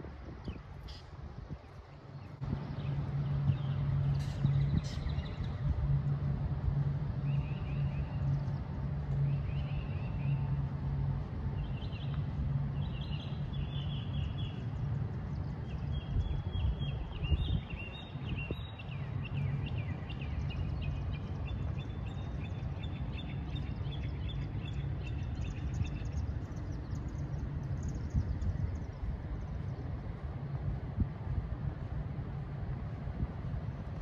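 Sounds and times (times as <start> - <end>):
low outdoor rumble: 0.0 - 34.0
songbirds chirping and trilling: 0.0 - 34.0.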